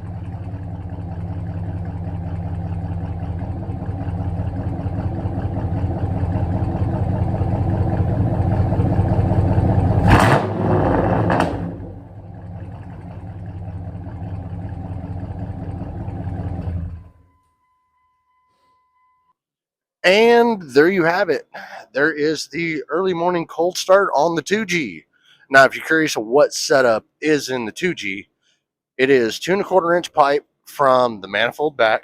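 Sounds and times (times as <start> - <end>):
truck engine idling: 0.0 - 17.4.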